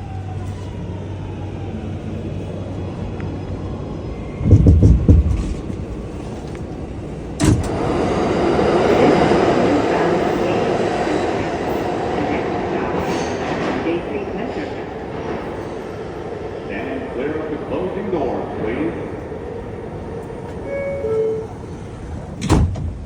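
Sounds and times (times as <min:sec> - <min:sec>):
subway train rumbling: 0:00.0 - 0:23.0
train rushing noise: 0:00.0 - 0:23.0
loud low thumping: 0:04.4 - 0:06.0.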